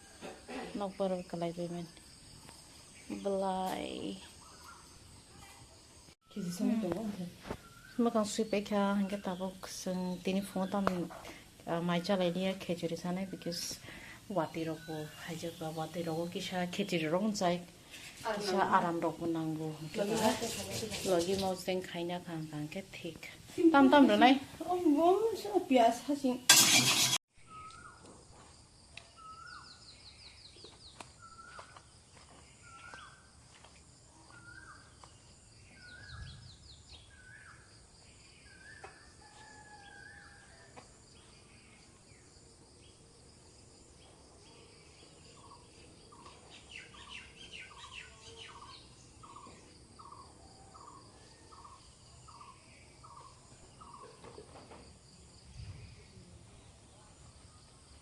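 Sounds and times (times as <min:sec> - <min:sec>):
faint birds calling: 0:02.2 - 0:17.2, 0:44.0 - 0:54.7.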